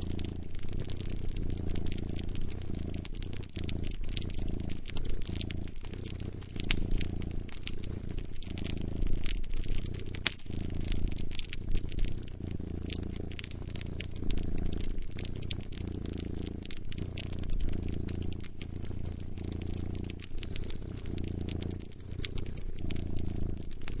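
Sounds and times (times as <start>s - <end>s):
cat purring: 0.0s - 24.0s
wood fire crackling and popping: 0.0s - 24.0s.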